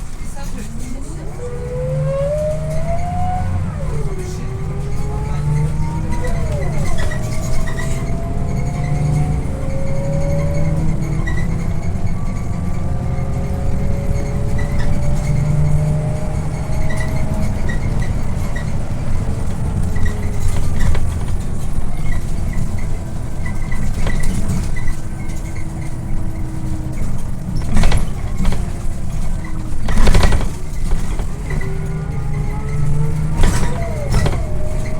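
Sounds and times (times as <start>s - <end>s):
bus engine and road rumble: 0.0s - 34.9s
faint drivetrain whine: 0.0s - 34.9s.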